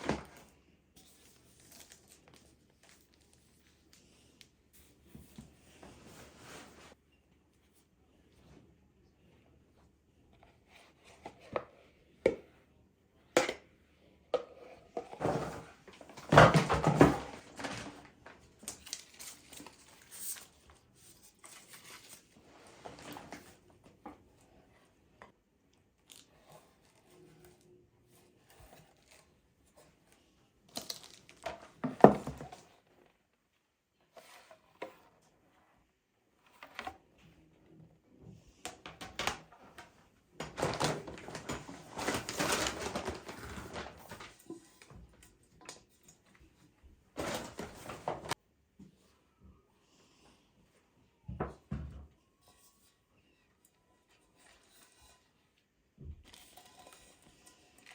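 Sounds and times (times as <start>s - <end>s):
packaging rustling and tearing: 40.4s - 44.4s.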